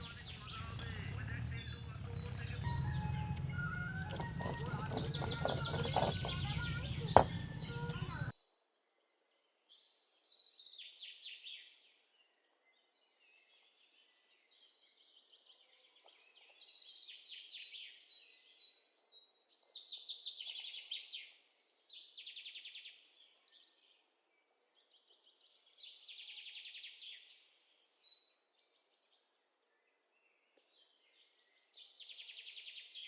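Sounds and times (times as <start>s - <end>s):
small birds trilling: 0.0s - 8.3s.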